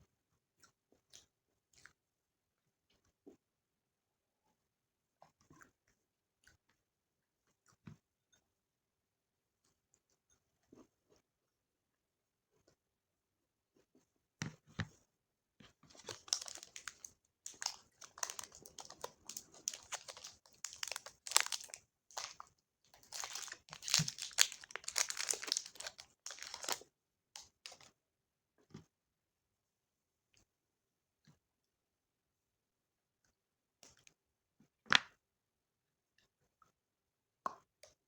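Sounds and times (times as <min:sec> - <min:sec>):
snack packaging crinkling and tearing: 0:15.9 - 0:27.9.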